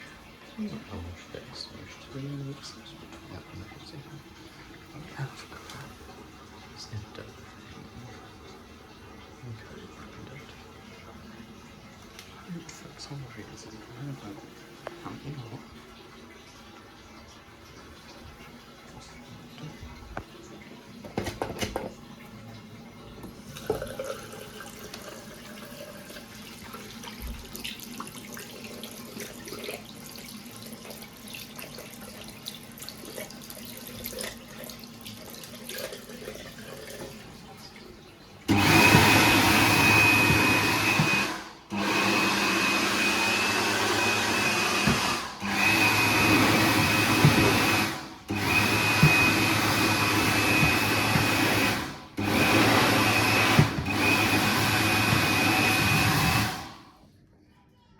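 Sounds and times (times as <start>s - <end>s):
hand dryer running: 0.0s - 22.1s, 38.4s - 57.0s.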